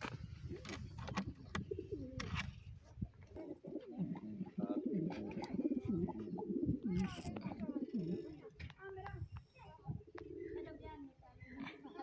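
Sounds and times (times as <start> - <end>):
pigeons cooing: 0.4 - 2.5, 3.3 - 8.6, 10.0 - 10.9.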